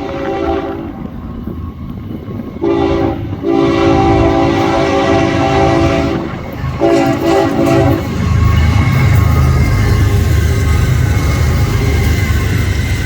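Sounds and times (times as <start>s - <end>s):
locomotive air horn blasts: 0.0s - 1.1s, 2.6s - 8.2s
train rumble: 0.0s - 13.0s.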